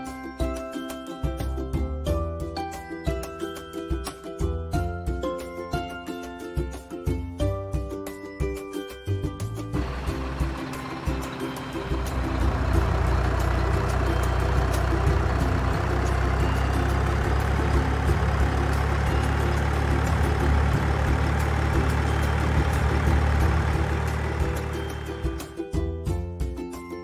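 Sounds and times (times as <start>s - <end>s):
heavy engine running: 9.6s - 26.1s.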